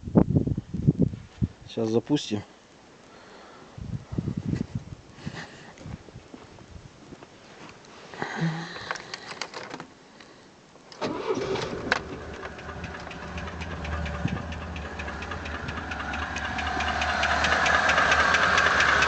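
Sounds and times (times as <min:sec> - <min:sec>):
short clicks and rattles: 0:08.8 - 0:09.9, 0:10.9 - 0:19.0
petrol engine starting and knocking: 0:11.0 - 0:19.0.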